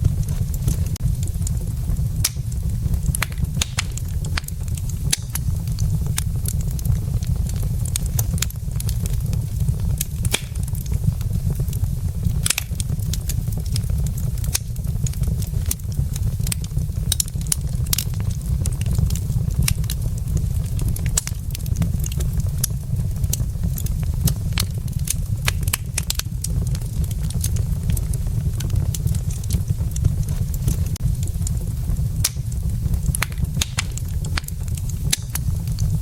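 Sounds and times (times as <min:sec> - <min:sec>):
fire low rumble: 0:00.0 - 0:36.0
logs crackling and popping: 0:00.0 - 0:36.0.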